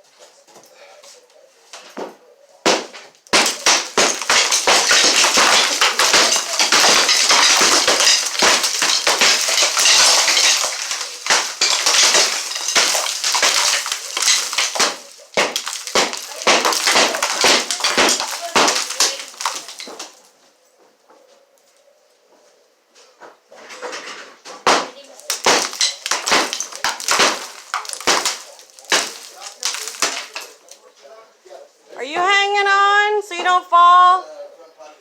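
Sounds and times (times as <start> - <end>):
building material smashing: 2.6 - 20.3, 24.7 - 30.8
hard impact: 2.7 - 20.1.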